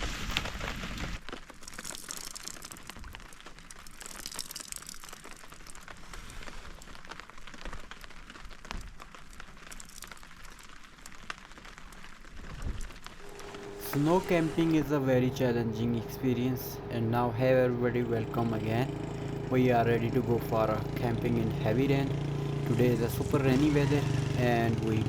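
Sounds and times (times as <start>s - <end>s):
steady rain falling: 5.2s - 25.0s.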